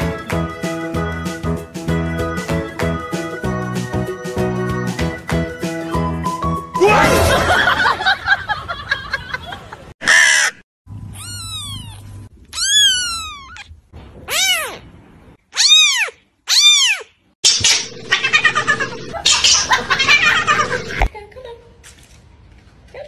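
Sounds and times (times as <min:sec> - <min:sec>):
kitten meowing: 0:11.1 - 0:14.8, 0:15.6 - 0:17.1
mixed noise: 0:17.4 - 0:21.1.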